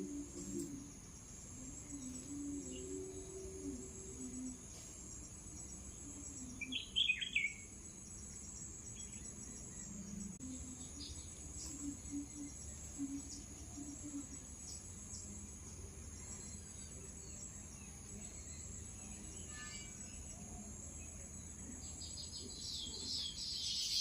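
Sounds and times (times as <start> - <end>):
crickets chirring: 0.0 - 24.0
bird chirps: 6.0 - 15.2, 21.6 - 24.0.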